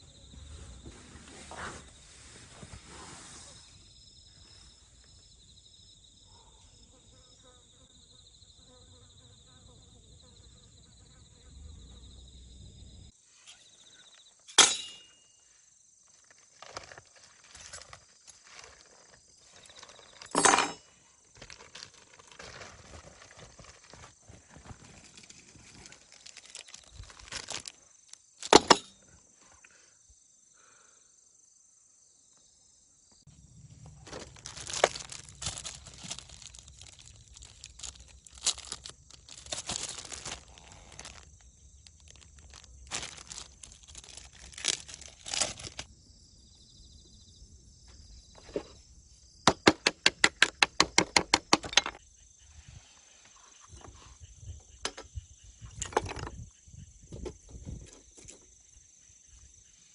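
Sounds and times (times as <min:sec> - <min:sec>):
hands rustling and tearing material: 0:34.1 - 0:41.3.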